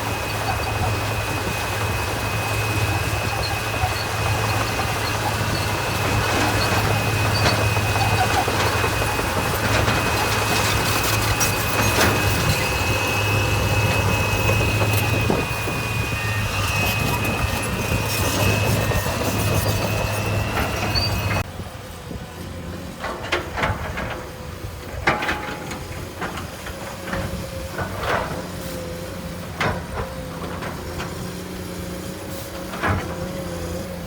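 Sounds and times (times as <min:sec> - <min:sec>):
diesel engine running: 0:00.0 - 0:25.0, 0:25.7 - 0:34.0.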